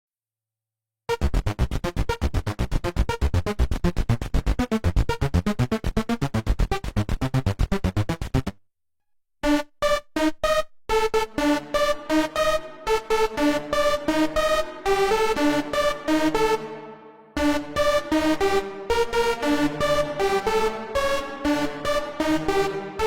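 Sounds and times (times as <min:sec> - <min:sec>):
synthesizer staccato notes: 0:01.1 - 0:08.6, 0:09.4 - 0:23.0
synthesizer playing short repeated notes: 0:09.4 - 0:23.0.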